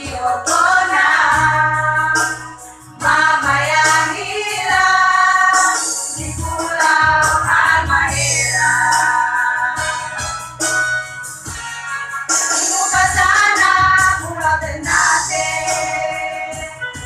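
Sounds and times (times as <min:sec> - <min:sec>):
women's choir singing: 0:00.0 - 0:02.3, 0:03.0 - 0:09.6, 0:12.7 - 0:16.7
instrumental accompaniment: 0:00.0 - 0:17.0.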